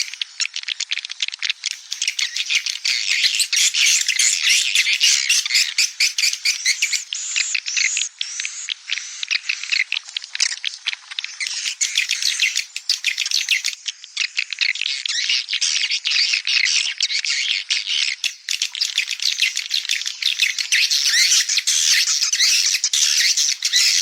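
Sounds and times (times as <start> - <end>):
swiftlets chirping and twittering: 0.0 - 0.4, 1.7 - 7.5, 11.4 - 13.8, 18.2 - 24.0.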